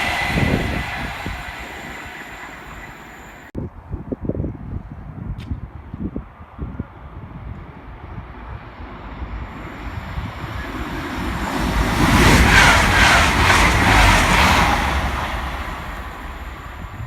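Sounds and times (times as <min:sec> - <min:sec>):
train wheels beating on rails: 0:00.0 - 0:03.5, 0:09.5 - 0:17.0
train passing at speed: 0:00.0 - 0:03.6, 0:07.9 - 0:17.0.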